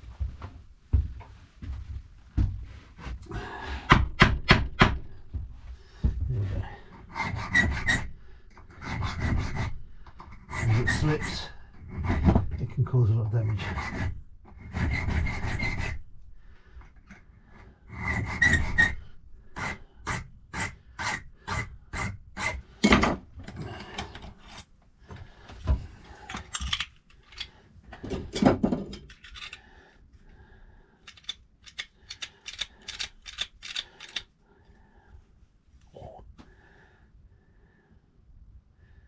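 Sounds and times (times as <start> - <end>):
hand file rasping on metal: 6.9 - 12.4, 13.5 - 16.0, 17.9 - 22.6.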